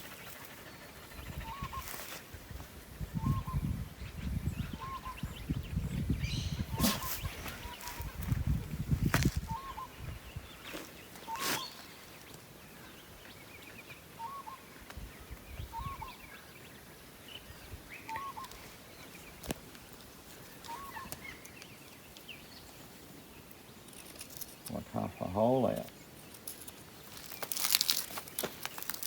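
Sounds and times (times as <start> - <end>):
bird calling: 0.0 - 2.2, 3.2 - 5.6, 6.2 - 8.4, 9.4 - 12.1, 14.1 - 14.8, 15.6 - 16.6, 17.3 - 19.3, 20.5 - 22.7.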